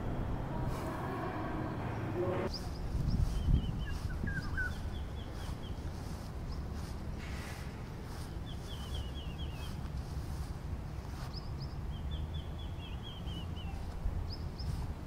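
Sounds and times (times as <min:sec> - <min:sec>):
low wind rumble: 0:00.0 - 0:15.0
bird singing: 0:01.9 - 0:06.9, 0:08.1 - 0:09.9, 0:11.1 - 0:14.8.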